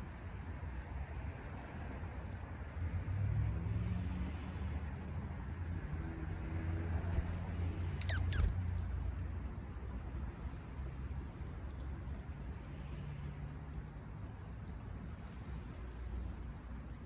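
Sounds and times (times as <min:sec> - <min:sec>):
bird chirps and whistles: 0:07.2 - 0:08.5.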